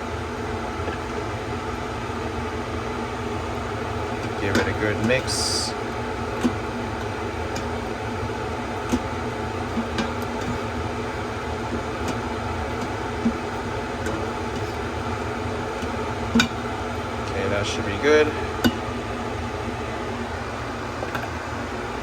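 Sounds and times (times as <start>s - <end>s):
steady fan-like hum: 0.0s - 22.0s
spoon stirring in metal pot: 4.0s - 17.8s.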